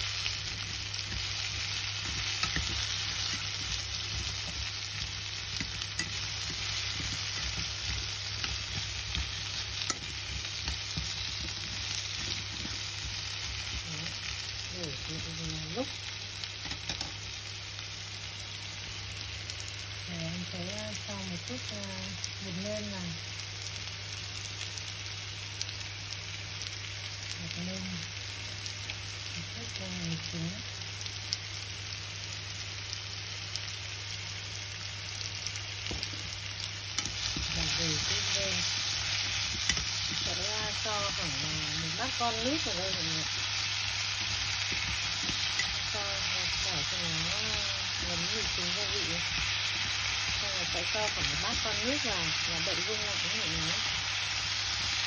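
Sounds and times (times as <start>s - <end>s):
food sizzling in oil: 0.0s - 55.0s
chopsticks scraping a pan: 0.5s - 13.9s, 37.0s - 43.0s, 43.6s - 46.6s.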